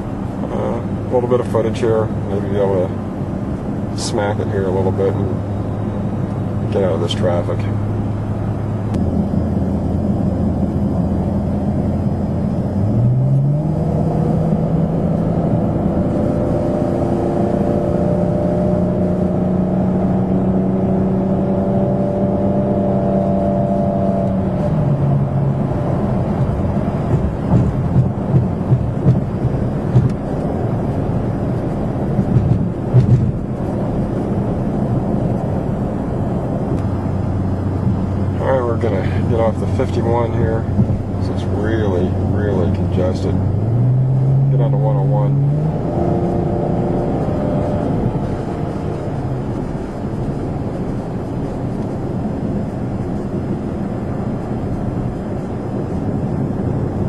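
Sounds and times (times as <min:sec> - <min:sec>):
car exhaust accelerating: 0:00.0 - 0:57.0
short thumps: 0:26.3 - 0:30.4, 0:32.1 - 0:33.5, 0:40.6 - 0:41.3.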